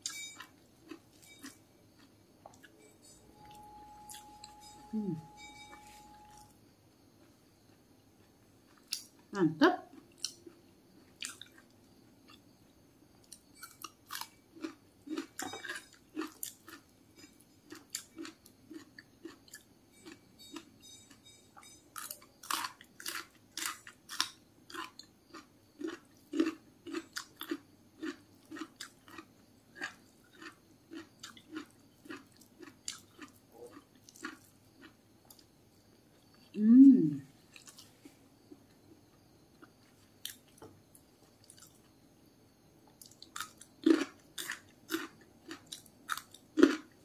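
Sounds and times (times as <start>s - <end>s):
person chewing and lip-smacking: 9.9s - 10.6s, 11.2s - 11.7s, 13.2s - 20.7s, 21.6s - 35.5s, 41.4s - 41.9s, 42.9s - 47.0s.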